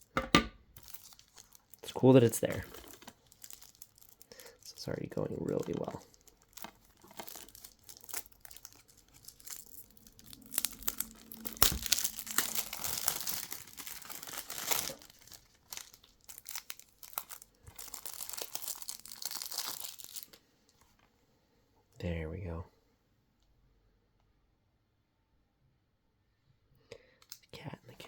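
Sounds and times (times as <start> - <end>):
plastic wrap tearing and crinkling: 0.7 - 20.4.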